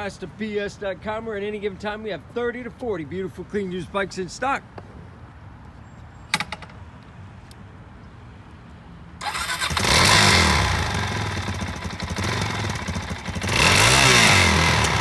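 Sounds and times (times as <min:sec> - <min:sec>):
motorcycle engine starting and revving: 0:09.2 - 0:15.0.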